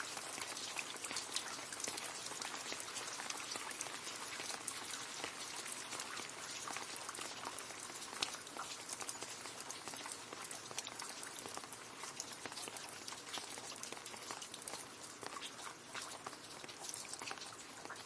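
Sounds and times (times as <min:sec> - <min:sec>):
rain falling into a puddle: 0:00.0 - 0:18.0.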